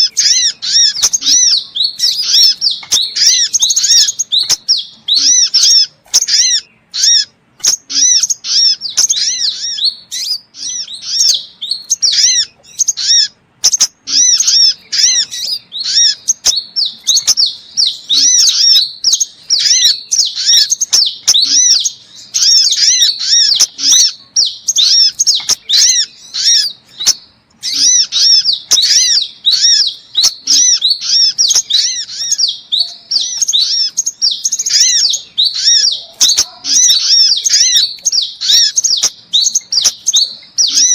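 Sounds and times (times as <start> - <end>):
birds chirping and twittering: 0.0 - 40.9.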